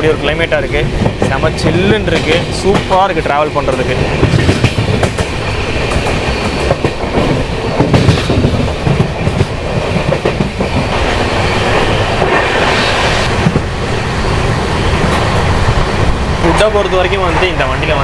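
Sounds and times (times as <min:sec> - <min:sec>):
wheels clattering over rail joints: 0:00.0 - 0:12.7
train coach rumbling on track: 0:00.0 - 0:18.0.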